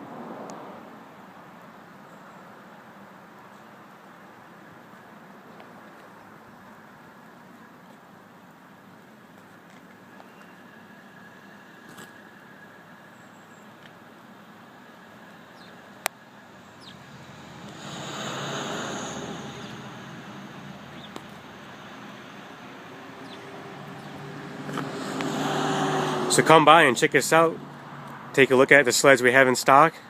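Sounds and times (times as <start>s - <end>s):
road vehicle passing: 0.0s - 1.1s, 11.0s - 28.9s.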